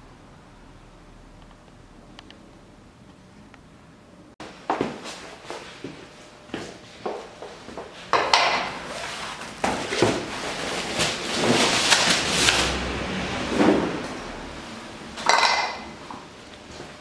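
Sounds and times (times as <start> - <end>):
scraping and rustling: 8.6 - 14.4.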